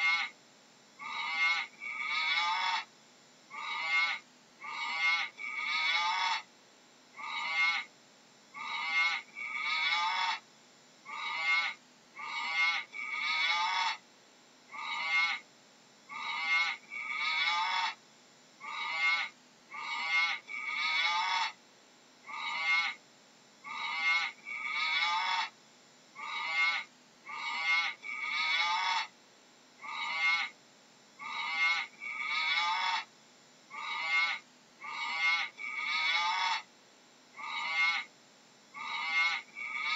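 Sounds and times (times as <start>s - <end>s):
animal calls: 0.0s - 0.4s, 1.0s - 2.9s, 3.5s - 6.5s, 7.2s - 7.9s, 8.6s - 10.4s, 11.0s - 14.0s, 14.7s - 15.5s, 16.1s - 18.0s, 18.6s - 21.6s, 22.2s - 23.0s, 23.6s - 25.6s, 26.2s - 29.2s, 29.8s - 30.6s, 31.2s - 33.1s, 33.7s - 36.7s, 37.4s - 38.1s, 38.8s - 39.9s.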